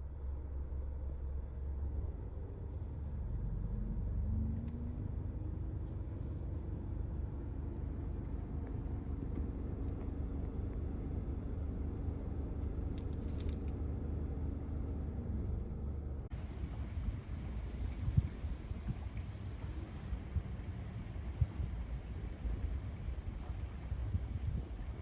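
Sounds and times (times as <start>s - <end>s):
vehicle engine rumbling: 0.0s - 16.8s
light rattles: 12.9s - 13.8s
metallic jingle: 13.0s - 13.8s.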